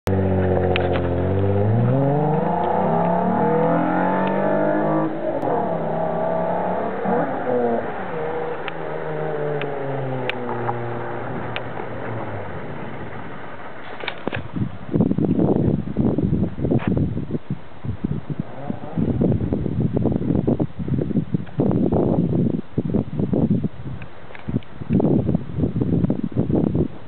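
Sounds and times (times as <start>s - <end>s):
car engine accelerating hard: 0.1s - 13.9s.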